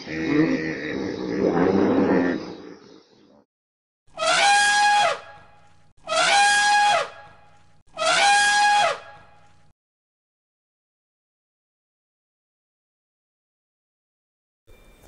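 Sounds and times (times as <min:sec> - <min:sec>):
elephant trumpeting: 0:04.2 - 0:05.4, 0:06.1 - 0:07.3, 0:08.0 - 0:09.2.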